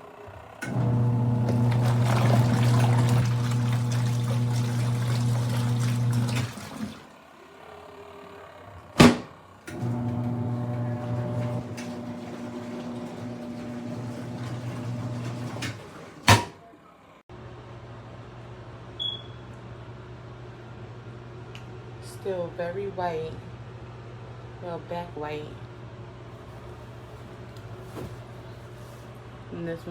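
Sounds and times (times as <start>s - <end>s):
washing machine motor humming: 0.0s - 16.8s
water sloshing: 1.4s - 7.1s.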